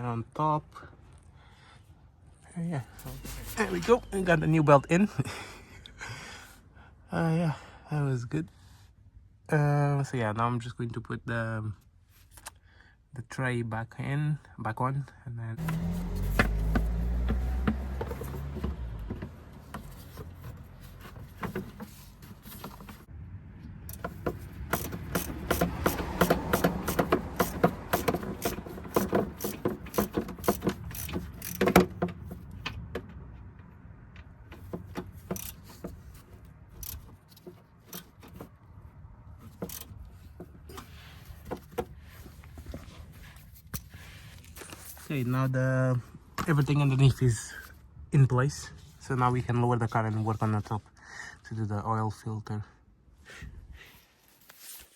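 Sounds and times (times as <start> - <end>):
clicks and rattles of hand tools: 23.9 - 32.9, 34.6 - 36.2, 36.8 - 38.5, 39.5 - 41.9.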